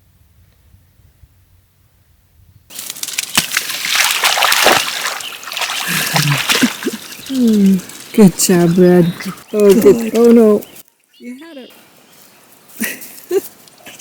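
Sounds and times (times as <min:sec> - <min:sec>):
dog splashing through water: 0:02.7 - 0:10.3.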